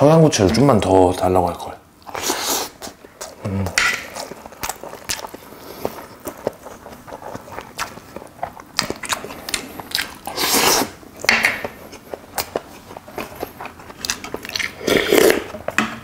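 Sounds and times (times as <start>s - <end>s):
chewing with wet clicks: 4.0s - 10.3s, 11.2s - 14.9s.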